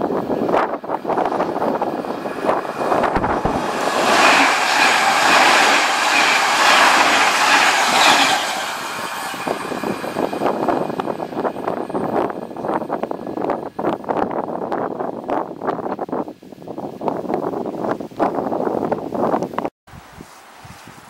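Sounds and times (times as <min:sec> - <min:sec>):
train passing at speed: 0:00.0 - 0:14.4.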